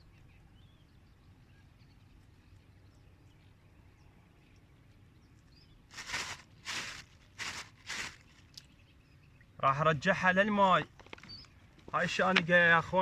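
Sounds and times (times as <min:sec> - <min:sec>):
bird chirps: 0:11.2 - 0:11.6.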